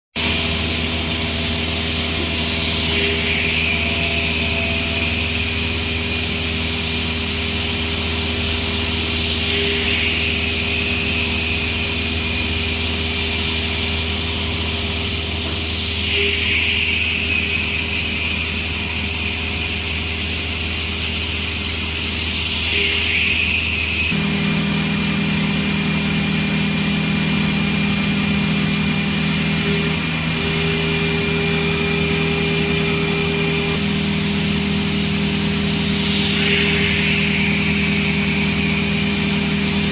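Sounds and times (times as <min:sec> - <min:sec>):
milling machine cutting steel: 0:00.2 - 0:39.9
low hum: 0:00.3 - 0:39.9.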